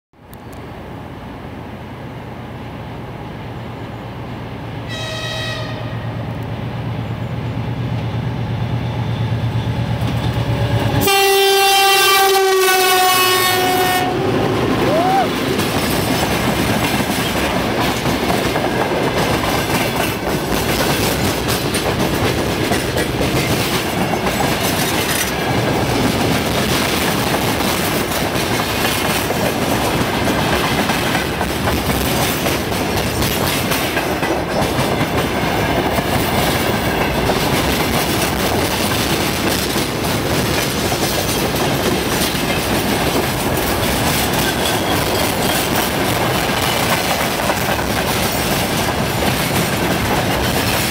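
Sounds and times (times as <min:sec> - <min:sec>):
freight train wagons rumbling: 0:00.4 - 0:50.9
wheels clacking over rail joints: 0:14.0 - 0:50.9.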